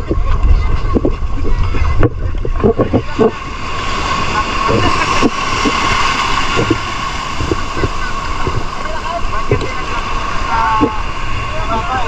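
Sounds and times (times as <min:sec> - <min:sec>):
seawater sloshing and splashing: 0:00.0 - 0:12.0
waves rushing: 0:00.0 - 0:12.0.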